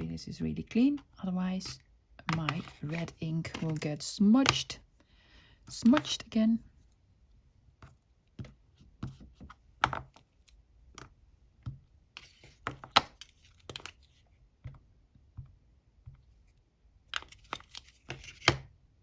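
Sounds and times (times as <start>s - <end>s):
rubber stamps clicking and tapping: 1.6s - 4.8s.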